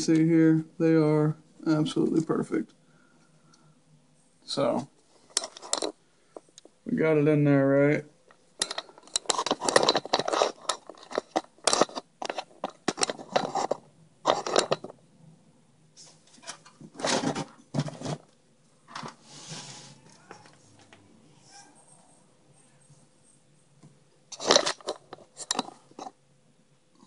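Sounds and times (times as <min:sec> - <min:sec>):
computer parts being handled: 0:05.3 - 0:06.6, 0:08.6 - 0:14.9, 0:16.3 - 0:18.3, 0:24.3 - 0:26.1.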